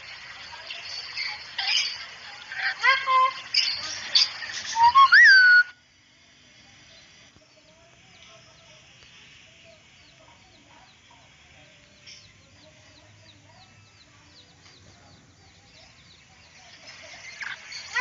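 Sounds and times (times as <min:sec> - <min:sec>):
short high bird chirps: 0:04.7 - 0:05.7
softer low bird calls: 0:04.7 - 0:05.8.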